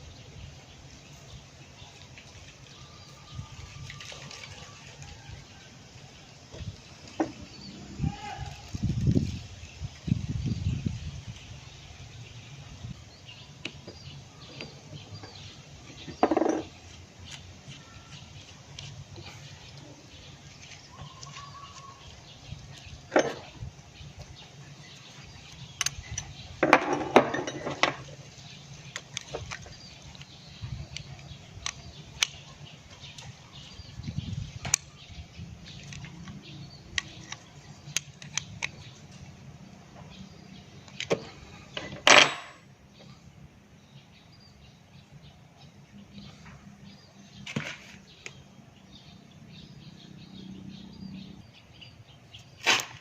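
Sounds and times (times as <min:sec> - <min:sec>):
metal tools and parts clinking: 0:16.0 - 0:16.8, 0:23.1 - 0:23.6, 0:25.6 - 0:28.1, 0:41.0 - 0:42.7.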